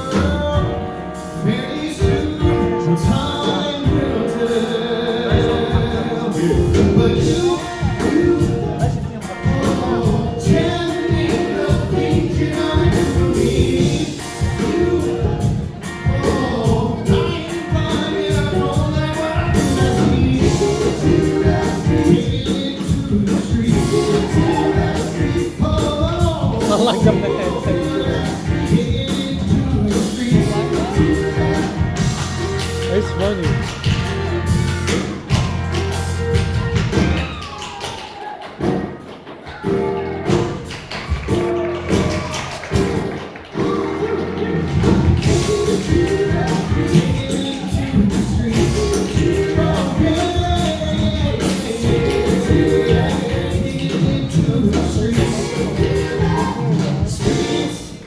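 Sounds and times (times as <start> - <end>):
person singing: 0.0 - 33.7
steady drumbeat: 0.0 - 37.8, 39.5 - 57.8
rock band playing: 0.0 - 58.0.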